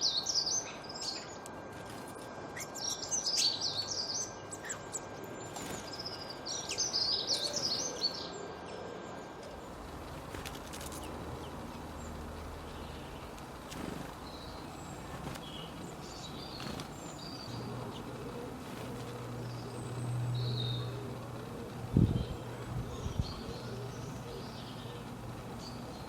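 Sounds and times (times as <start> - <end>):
small birds chirping: 2.6 - 26.0
background hiss: 9.3 - 26.0
low buzz: 9.5 - 26.0.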